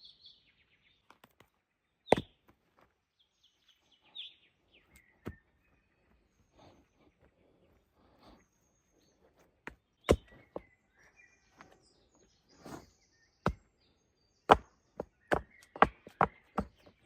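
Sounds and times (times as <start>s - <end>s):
wood being chopped: 2.1s - 2.9s, 4.9s - 5.4s, 9.6s - 10.6s, 12.7s - 13.6s, 14.5s - 16.8s.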